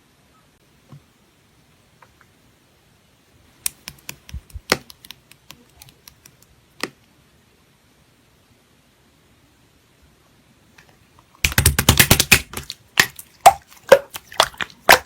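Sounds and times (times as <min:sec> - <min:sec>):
slime clicking: 0:11.5 - 0:15.0.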